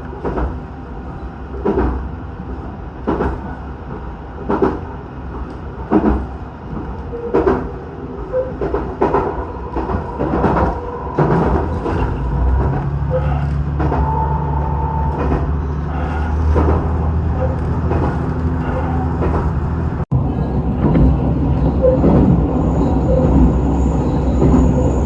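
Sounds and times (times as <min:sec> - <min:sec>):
low train engine drone: 0:00.0 - 0:25.0
train wheels knocking on rail joints: 0:01.6 - 0:02.0, 0:03.0 - 0:03.6, 0:05.9 - 0:07.7, 0:08.6 - 0:14.2, 0:15.1 - 0:15.6.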